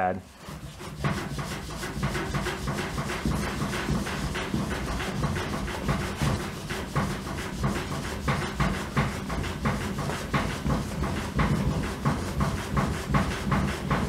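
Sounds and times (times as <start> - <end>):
pad rubbing on canoe hull: 0.2 - 14.0.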